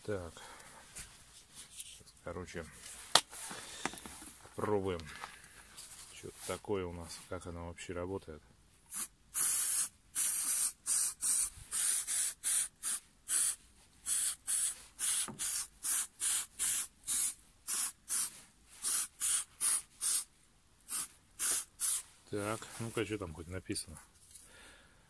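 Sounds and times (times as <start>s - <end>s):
spray can hissing squirts: 8.9s - 20.3s, 20.9s - 22.0s.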